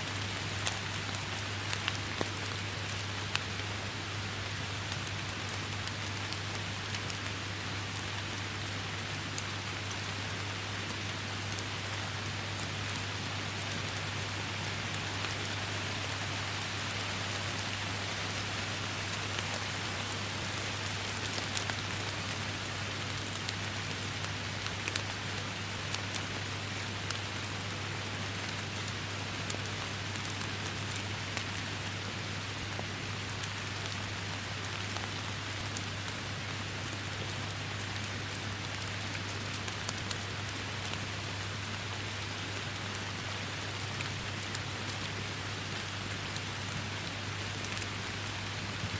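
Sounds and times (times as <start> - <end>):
rain falling on foliage: 0.0 - 48.9.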